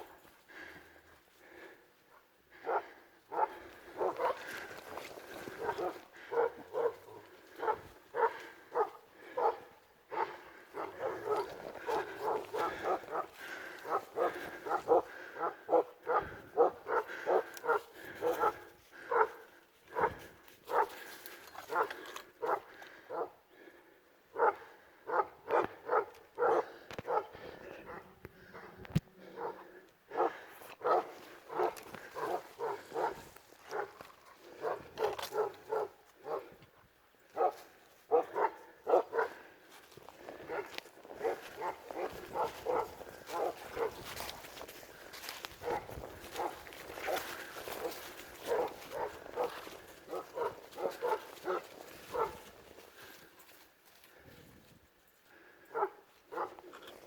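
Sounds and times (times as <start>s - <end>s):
dog barking: 2.6s - 4.6s, 5.5s - 21.0s, 21.7s - 23.4s, 24.3s - 36.6s, 37.3s - 39.4s, 40.5s - 44.0s, 45.6s - 52.4s, 55.7s - 56.7s.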